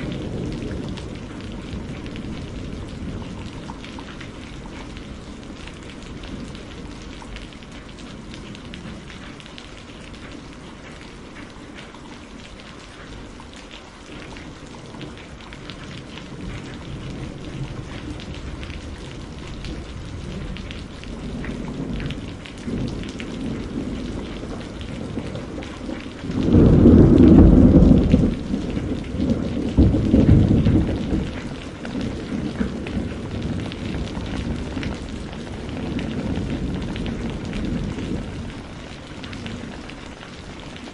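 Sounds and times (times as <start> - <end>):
thunder rumbling: 0.0 - 10.2, 14.2 - 40.9
steady rain: 0.0 - 40.9.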